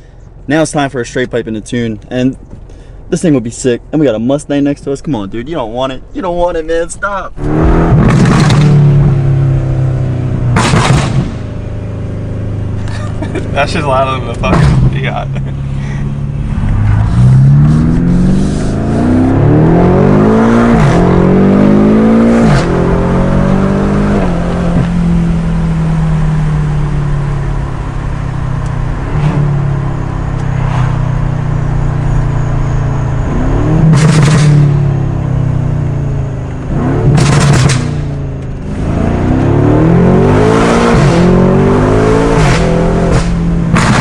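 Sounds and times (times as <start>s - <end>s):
car engine accelerating hard: 6.2s - 44.0s
exhaust pops: 7.3s - 9.0s, 10.4s - 11.5s, 12.9s - 15.6s, 33.8s - 34.8s, 37.0s - 38.9s, 42.4s - 44.0s.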